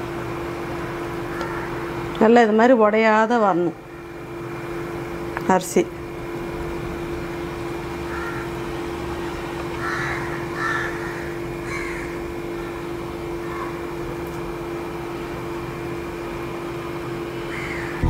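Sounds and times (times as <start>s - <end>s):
steady low hum: 0.0s - 18.0s
bird harsh calls: 9.8s - 12.8s, 17.5s - 18.0s.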